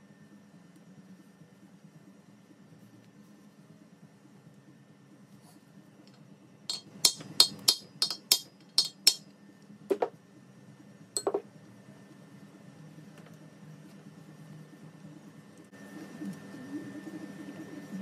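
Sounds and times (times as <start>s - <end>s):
metal-on-metal clinks: 6.7s - 9.2s.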